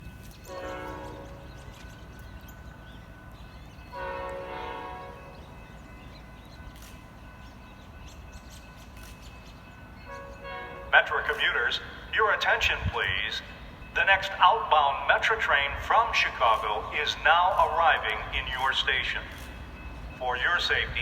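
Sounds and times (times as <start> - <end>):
locomotive air horn blasts: 0.5 - 1.5, 4.0 - 5.3.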